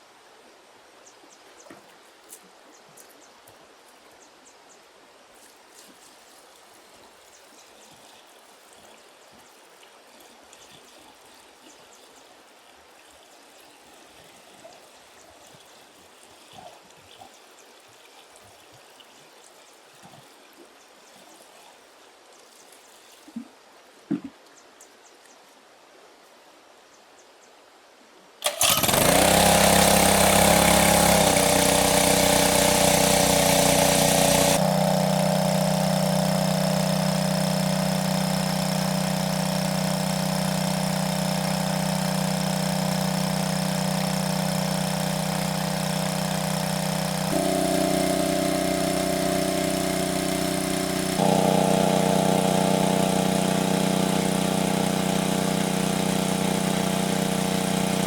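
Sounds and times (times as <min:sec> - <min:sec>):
small engine running: 0:28.4 - 0:58.0.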